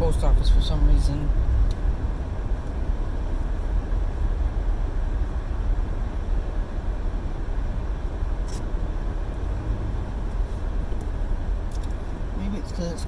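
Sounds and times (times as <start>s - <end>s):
car engine rumble inside cabin: 0.0s - 13.0s.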